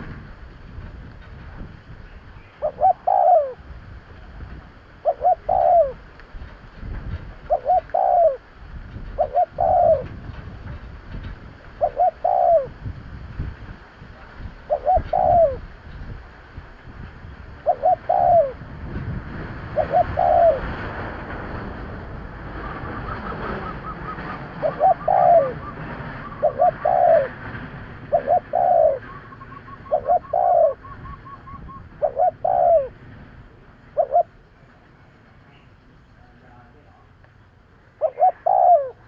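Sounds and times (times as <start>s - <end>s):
dove cooing: 2.4s - 3.7s, 5.0s - 6.1s, 7.3s - 10.3s, 11.8s - 12.8s, 14.6s - 15.7s, 17.6s - 18.6s, 19.6s - 20.9s, 22.6s - 33.0s, 33.9s - 34.4s, 37.9s - 39.0s.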